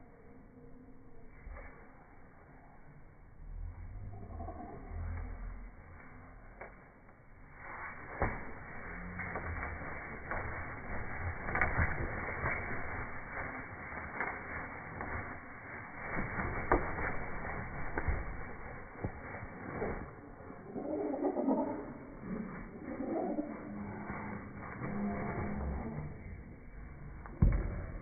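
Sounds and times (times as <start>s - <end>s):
parrots scuffling: 7.6s - 26.3s.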